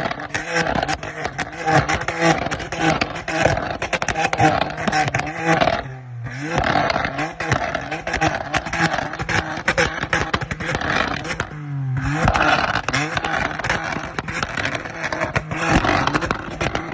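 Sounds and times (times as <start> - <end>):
car engine bouncing on rev limiter: 0.0 - 16.9
exhaust crackles and pops: 0.0 - 16.9.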